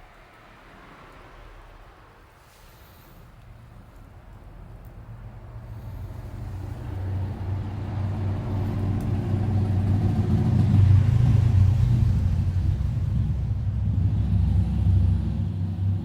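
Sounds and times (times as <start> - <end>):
vehicle engine rumbling: 3.6 - 16.0.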